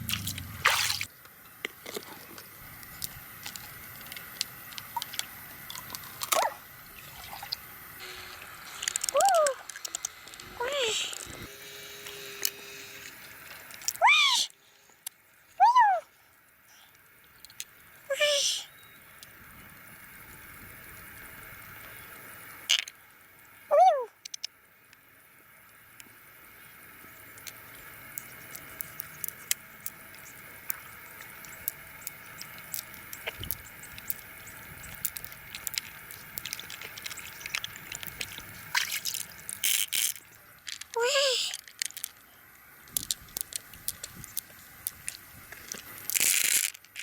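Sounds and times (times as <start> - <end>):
water sloshing and dripping: 0.0 - 1.1, 1.8 - 7.7, 27.4 - 41.0.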